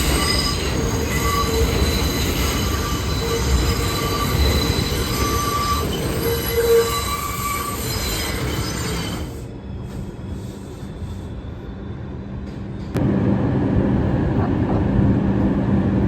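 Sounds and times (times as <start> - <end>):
train wheels squealing: 0.0 - 13.0
subway train rumbling: 0.0 - 16.0.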